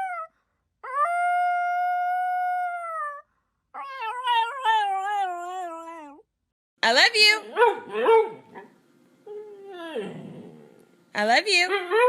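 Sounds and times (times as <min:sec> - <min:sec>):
dog howling whine: 0:00.0 - 0:03.2, 0:03.8 - 0:06.2, 0:09.2 - 0:10.7
dog yodelling whines: 0:00.0 - 0:03.2, 0:03.8 - 0:06.2, 0:09.2 - 0:10.6.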